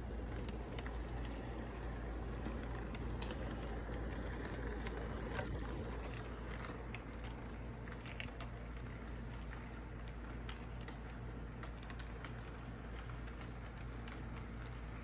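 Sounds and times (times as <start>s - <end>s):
freight train rumbling: 0.0s - 7.6s.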